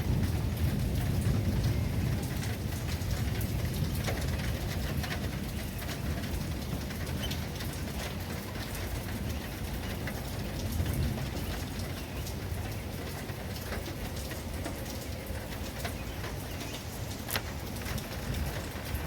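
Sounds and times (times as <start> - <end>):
thunder rumbling: 0.0 - 8.0
heavy rain on a surface: 0.0 - 19.0
raindrops ticking: 0.0 - 19.0.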